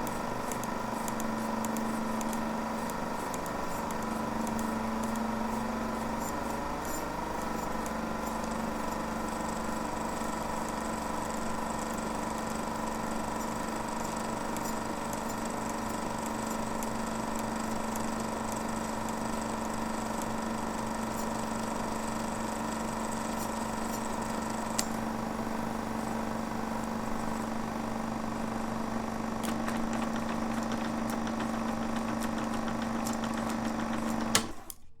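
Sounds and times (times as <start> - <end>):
click: 0.0 - 5.3, 29.4 - 29.7.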